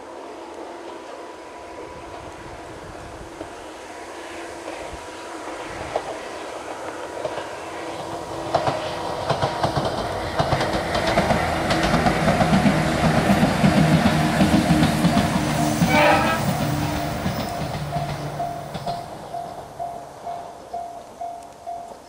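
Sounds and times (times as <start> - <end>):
electric train passing: 0.0 - 22.0
wheels clacking over rail joints: 5.8 - 22.0.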